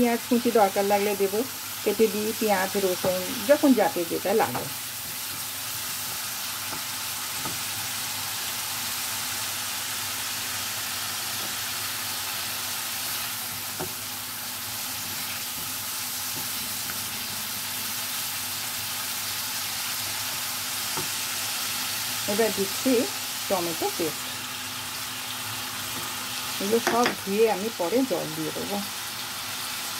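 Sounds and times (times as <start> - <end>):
paste sizzling in hot oil: 0.1 - 29.9
spatula tapping and scraping: 4.5 - 7.8, 13.5 - 14.1, 15.0 - 17.1, 20.8 - 21.2, 26.8 - 27.2.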